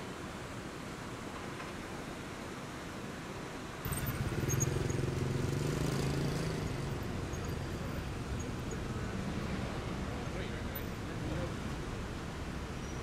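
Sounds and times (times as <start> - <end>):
city street noise: 0.0 - 13.0
car engine humming at low revs: 3.9 - 10.3.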